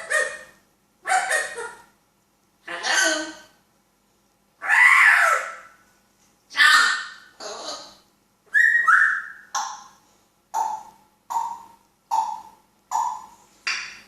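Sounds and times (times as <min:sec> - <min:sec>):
parrot calling: 0:00.0 - 0:01.9, 0:02.6 - 0:03.5, 0:04.6 - 0:05.8, 0:06.5 - 0:10.0.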